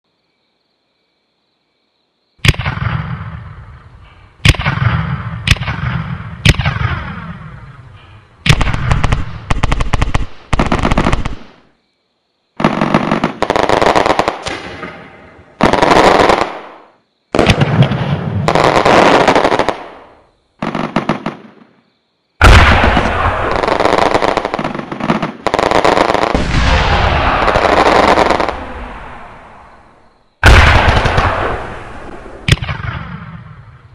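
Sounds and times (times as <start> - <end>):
crackling firecracker bursts: 12.6 - 21.4, 22.4 - 33.6
firework bangs: 12.6 - 21.7, 22.4 - 33.8.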